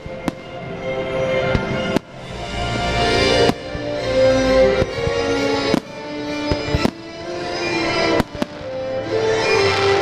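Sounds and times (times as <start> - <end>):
show music: 0.0 - 10.0
fireworks bangs: 4.8 - 7.3, 8.1 - 8.8.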